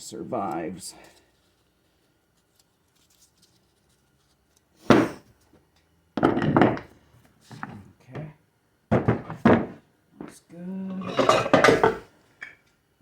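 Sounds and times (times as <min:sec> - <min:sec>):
metal parts clunking on workbench: 0:06.2 - 0:06.9, 0:08.9 - 0:10.4, 0:11.0 - 0:12.6.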